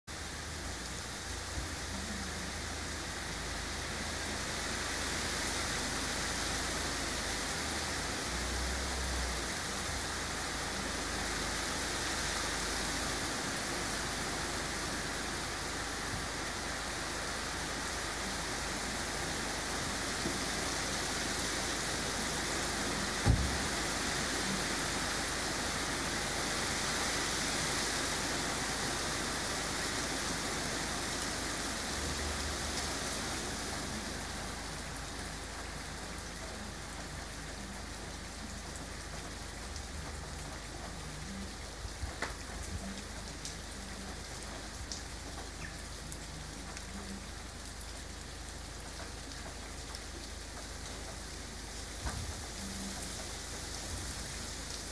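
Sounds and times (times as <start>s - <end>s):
raindrops ticking close by: 0.1s - 54.9s
steady rain falling: 0.1s - 54.9s.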